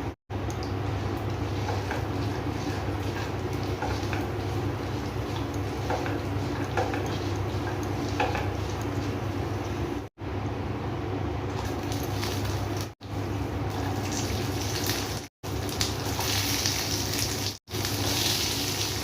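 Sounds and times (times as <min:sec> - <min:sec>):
steady low hum: 0:00.0 - 0:14.6.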